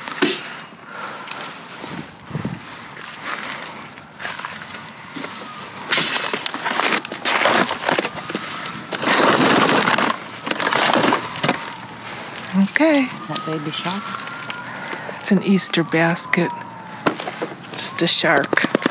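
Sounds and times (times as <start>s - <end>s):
toys rustling and clattering: 3.0s - 12.6s, 17.0s - 18.9s.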